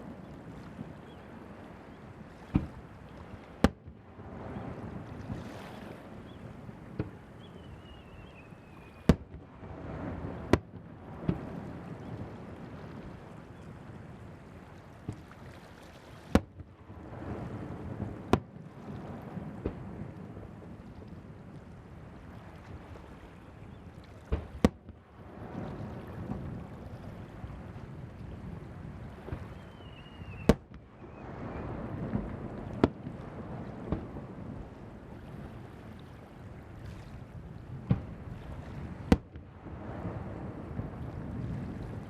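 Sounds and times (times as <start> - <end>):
faint fireworks pops: 2.5 - 4.0, 5.1 - 12.2, 15.0 - 15.3, 16.2 - 21.2, 24.0 - 25.0, 29.1 - 34.7, 37.7 - 40.2
fireworks bangs: 24.3 - 25.0, 29.2 - 34.3.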